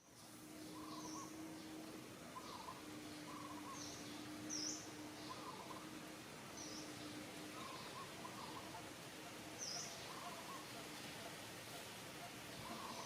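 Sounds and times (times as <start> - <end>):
birds chirping: 0.6 - 5.9, 6.6 - 8.8, 12.2 - 13.0.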